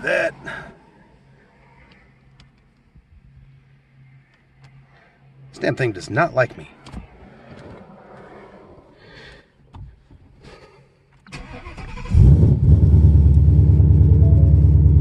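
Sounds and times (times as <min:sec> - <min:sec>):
car engine cranking: 0:11.2 - 0:15.0
deep engine idle: 0:13.0 - 0:15.0.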